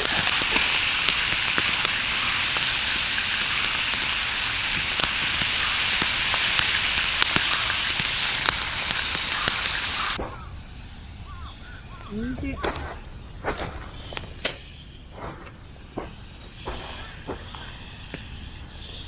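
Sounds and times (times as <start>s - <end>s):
meat sizzling on a grill: 0.0s - 10.2s.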